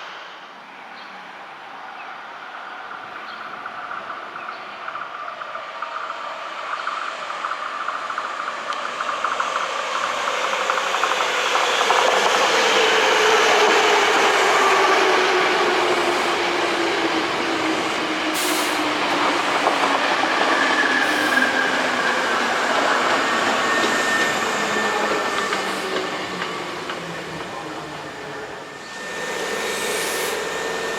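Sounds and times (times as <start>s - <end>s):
electric train running on rails: 0.0s - 30.9s
train motor and gear whine: 6.5s - 30.9s.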